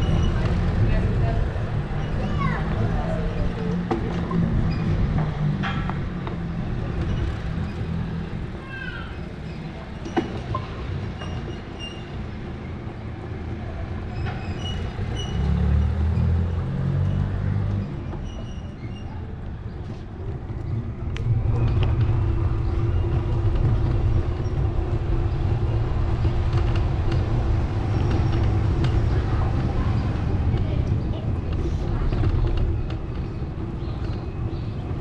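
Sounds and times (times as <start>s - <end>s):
vehicle rumble: 0.0s - 35.0s.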